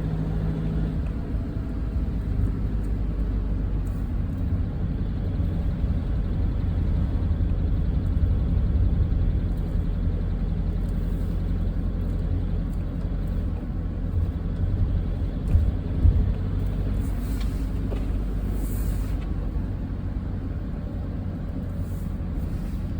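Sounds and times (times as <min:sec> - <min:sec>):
car engine rumble: 0:00.0 - 0:22.9
road noise: 0:00.0 - 0:22.9
car bumps: 0:14.6 - 0:16.6.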